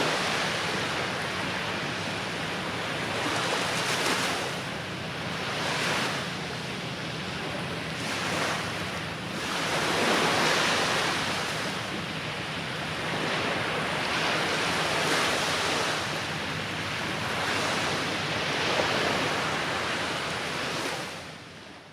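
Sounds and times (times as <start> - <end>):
waves breaking on beach: 0.0 - 21.5.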